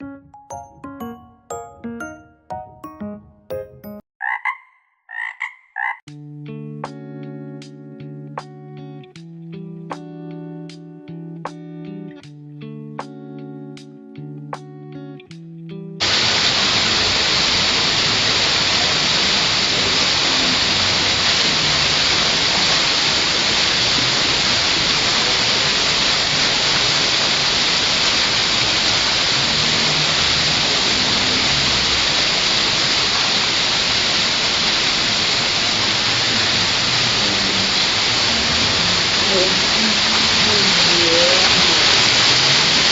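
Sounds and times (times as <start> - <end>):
plucked guitar music: 0.0 - 4.0, 6.1 - 16.0
loud steady hiss: 16.0 - 42.9.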